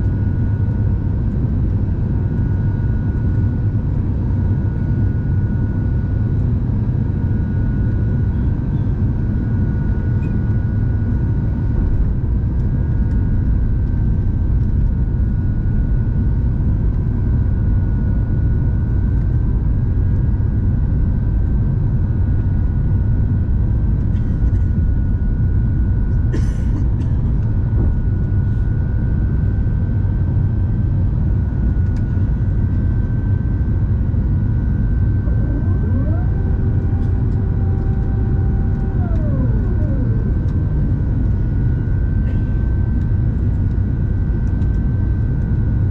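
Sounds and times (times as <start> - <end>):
airplane cabin rumble: 18.8 - 45.9.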